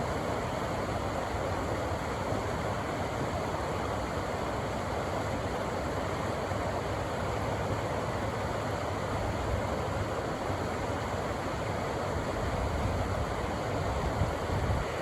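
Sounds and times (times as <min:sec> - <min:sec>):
river water rushing: 0:13.2 - 0:15.0.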